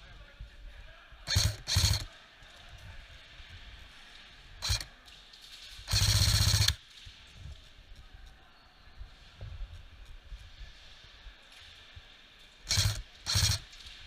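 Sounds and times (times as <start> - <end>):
airsoft guns firing bursts: 1.3 - 2.2, 4.6 - 4.9, 5.9 - 6.8, 12.7 - 14.0.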